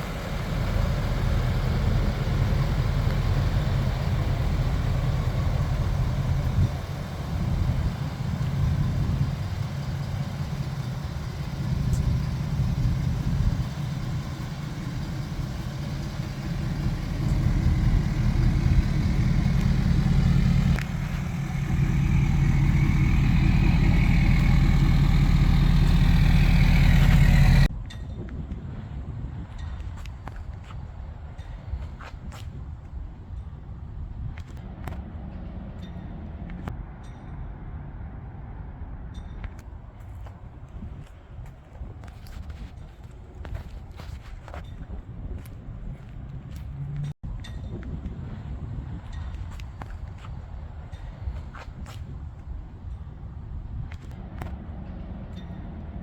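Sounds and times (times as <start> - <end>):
diesel engine idling: 0.0 - 27.7.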